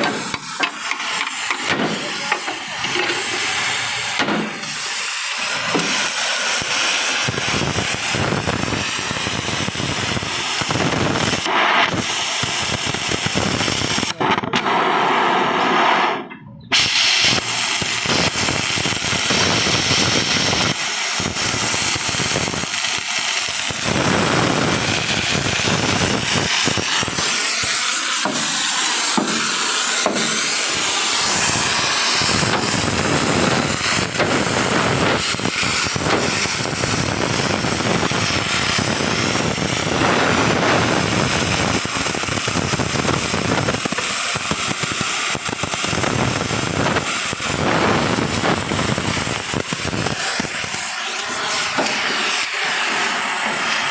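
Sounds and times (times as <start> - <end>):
power tool hissing rattle: 0.0 - 53.9.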